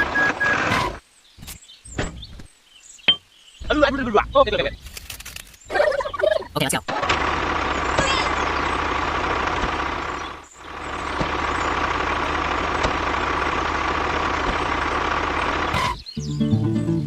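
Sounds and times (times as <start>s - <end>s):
mini tractor engine droning: 0.0s - 1.0s, 6.9s - 17.0s
constant whine: 3.1s - 16.1s.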